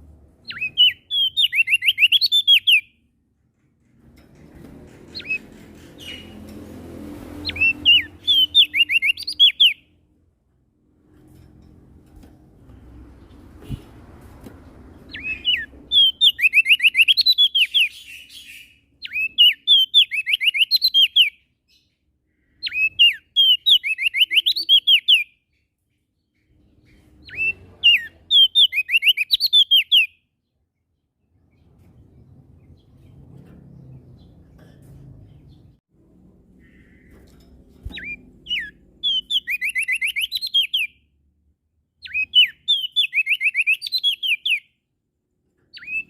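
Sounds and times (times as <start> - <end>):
songbird whistling: 0.4 - 3.0, 7.4 - 9.8, 15.1 - 21.4, 22.6 - 25.4, 27.2 - 30.2, 37.9 - 41.0, 42.0 - 44.7, 45.7 - 46.0.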